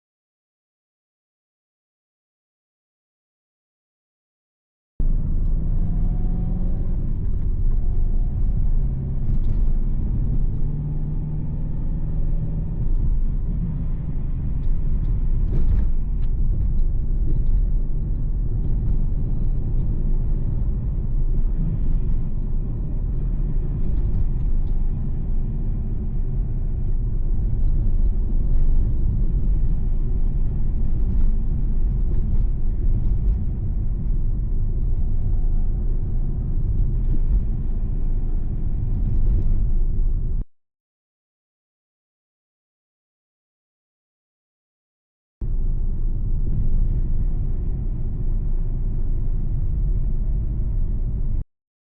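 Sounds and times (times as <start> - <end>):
road and engine rumble in car: 5.0 - 40.5, 45.4 - 51.5.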